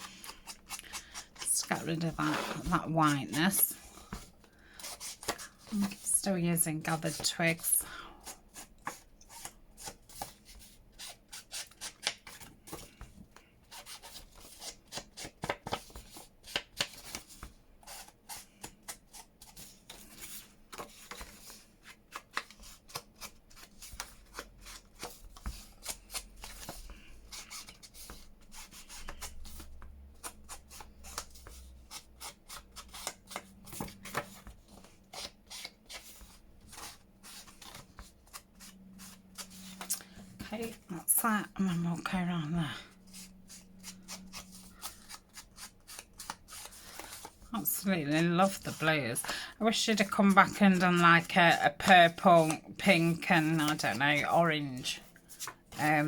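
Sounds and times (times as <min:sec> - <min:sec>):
felt scratching on card: 0:00.0 - 0:12.0.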